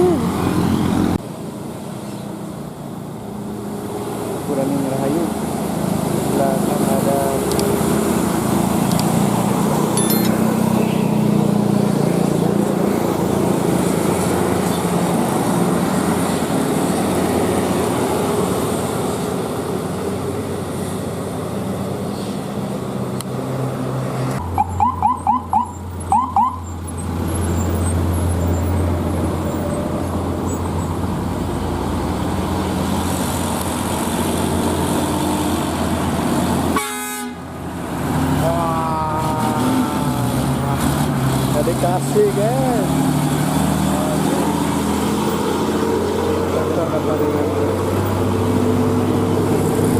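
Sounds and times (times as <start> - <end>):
heavy vehicles labouring uphill: 0.0 - 49.9
vehicle horn short blasts: 36.8 - 37.4.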